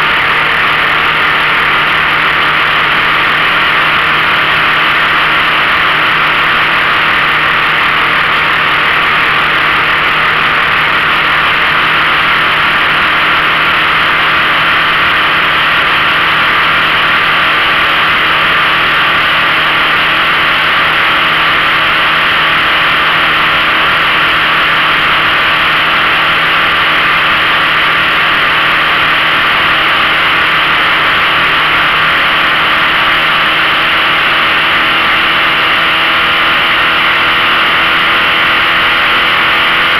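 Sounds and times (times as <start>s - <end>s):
outboard motor droning: 0.0s - 39.9s.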